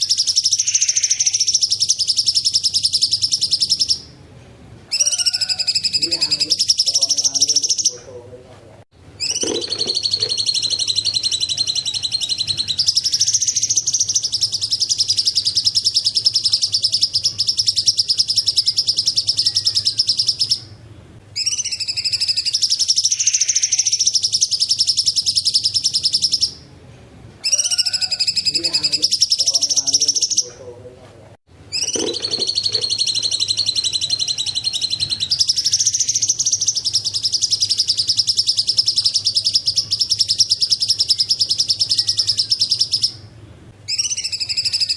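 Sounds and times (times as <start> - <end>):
bird singing high chirping notes: 0.0 - 4.2, 9.2 - 20.8, 21.4 - 26.6, 31.7 - 43.3, 43.9 - 44.9.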